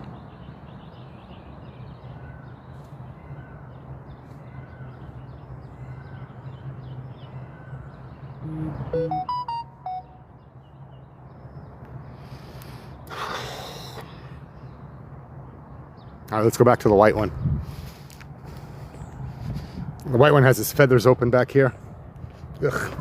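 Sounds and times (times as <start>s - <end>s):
faint bird chirps: 7.6s - 10.2s
short electronic chime: 8.4s - 10.2s.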